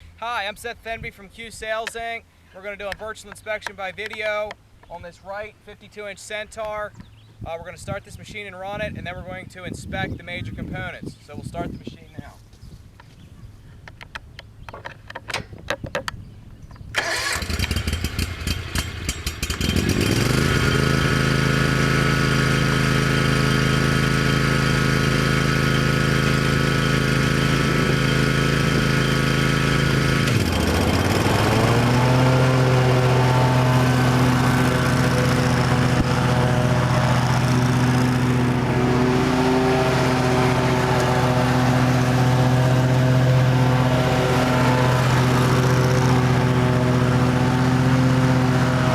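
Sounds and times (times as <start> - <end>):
mower engine cranking and running: 16.9 - 48.9.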